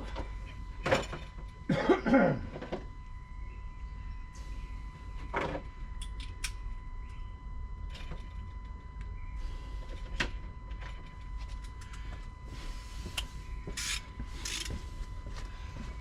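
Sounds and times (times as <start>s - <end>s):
hand ratchet clicking: 13.8s - 14.7s.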